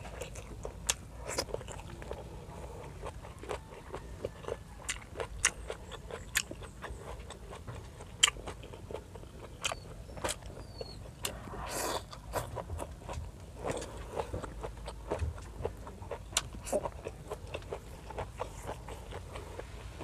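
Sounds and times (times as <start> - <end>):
crunchy seaweed chewing: 0.0 - 20.0.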